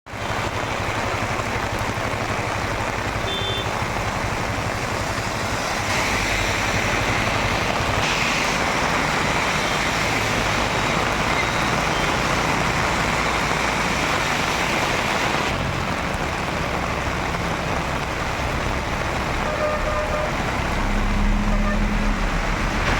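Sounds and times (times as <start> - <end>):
heavy rain pouring: 0.1 - 22.9
low vehicle rumble: 15.0 - 22.9.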